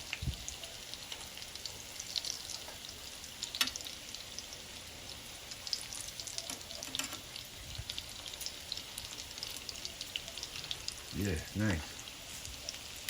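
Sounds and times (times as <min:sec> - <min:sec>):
food sizzling in frying oil: 0:00.0 - 0:13.0.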